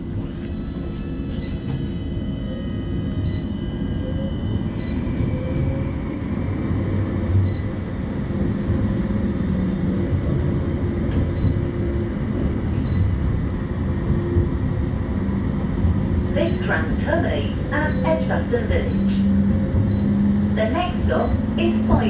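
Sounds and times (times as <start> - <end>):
tram motor whine: 0.0 - 22.0
tram wheels rumbling: 0.0 - 22.0.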